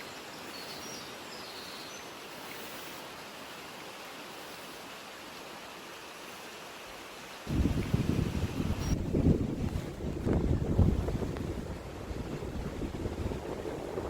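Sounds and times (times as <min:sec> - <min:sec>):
even rushing hiss: 0:00.0 - 0:09.1.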